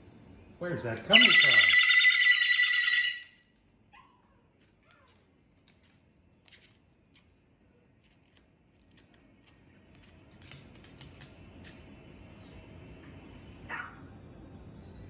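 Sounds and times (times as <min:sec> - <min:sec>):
warbling telephone ringing tone: 0:01.1 - 0:03.4.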